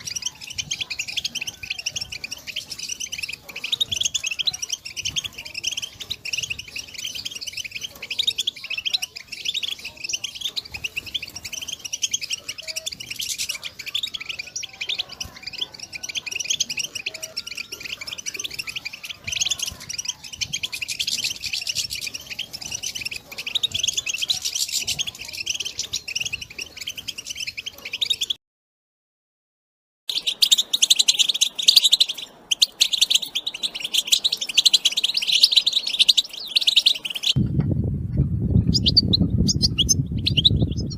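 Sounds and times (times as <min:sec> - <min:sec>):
goldfinches twittering: 0:00.0 - 0:28.4, 0:30.1 - 0:37.4.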